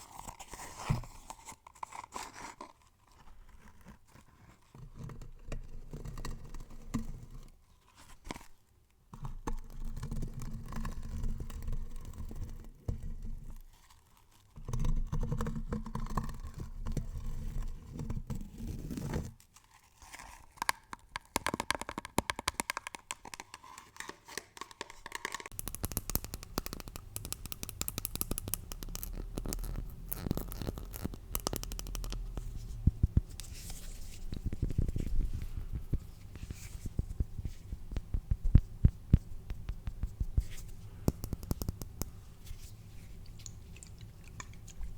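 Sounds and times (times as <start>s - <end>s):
rapid clicks or taps: 24.6s - 42.4s
crackly hissing texture: 25.5s - 44.9s
rough scratching and crinkling: 25.5s - 44.9s.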